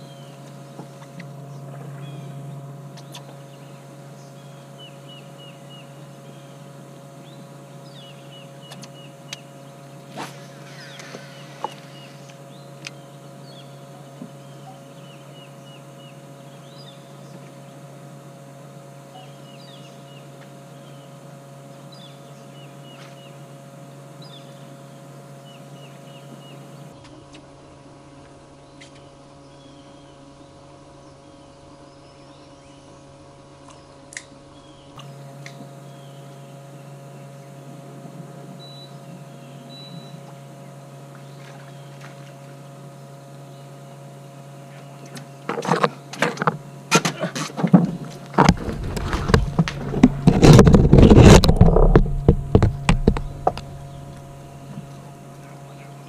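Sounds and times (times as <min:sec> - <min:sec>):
small birds chirping: 0:00.0 - 0:09.8, 0:10.4 - 0:17.9, 0:19.1 - 0:23.4, 0:38.6 - 0:42.4, 0:50.9 - 0:56.0
low electric hum: 0:00.0 - 0:56.0.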